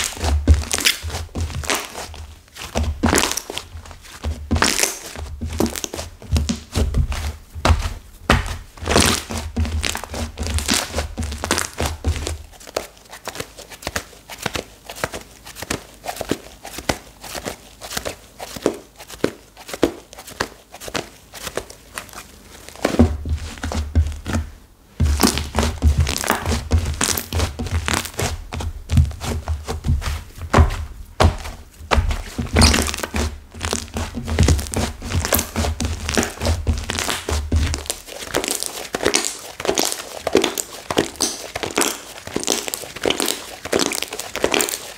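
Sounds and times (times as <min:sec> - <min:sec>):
hardened slime crackling and tearing: 0:00.0 - 0:03.7, 0:25.0 - 0:28.4, 0:32.2 - 0:44.9
dull thumps: 0:00.0 - 0:12.5, 0:22.8 - 0:38.5.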